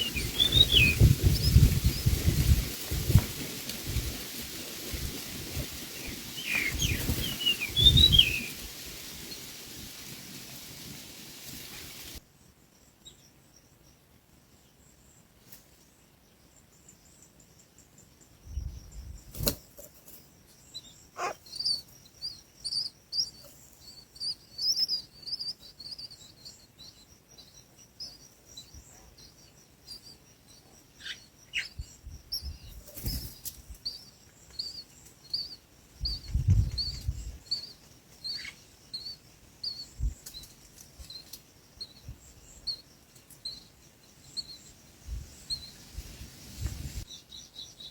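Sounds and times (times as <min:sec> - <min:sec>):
small bird chirping: 0:00.0 - 0:03.0, 0:06.0 - 0:08.6, 0:16.3 - 0:47.9.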